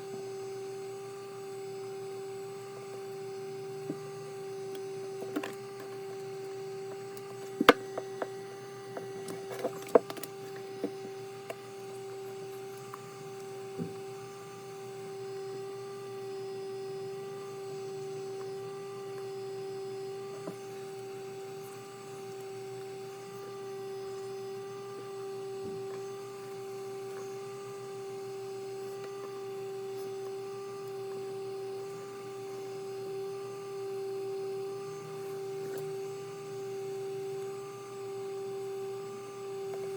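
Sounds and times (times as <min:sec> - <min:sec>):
steady electrical hum: 0:00.0 - 0:39.9
sharp clicks and knocks: 0:07.1 - 0:11.6.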